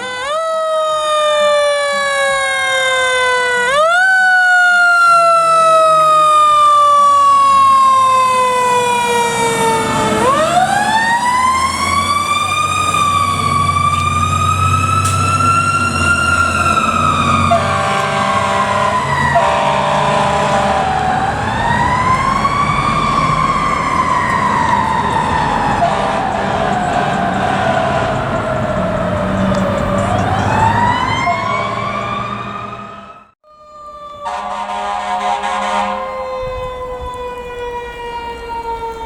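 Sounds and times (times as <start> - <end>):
fire truck siren wailing: 0.0 - 39.0
diesel engine rumble: 6.8 - 33.4
air horn blasts: 17.3 - 22.5, 25.7 - 30.6, 34.2 - 37.1.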